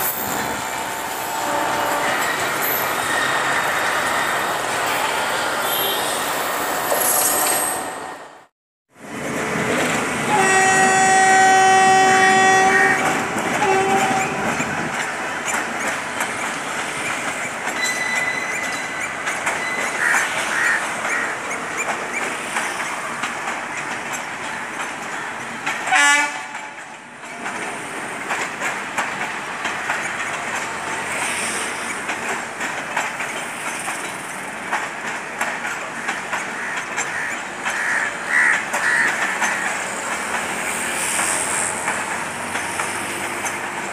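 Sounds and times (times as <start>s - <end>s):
passenger train running on track: 0.0s - 43.9s
train horn blowing: 1.3s - 2.8s, 5.6s - 6.2s, 10.3s - 14.4s, 25.9s - 26.7s
wheels clickety-clack: 9.1s - 43.9s.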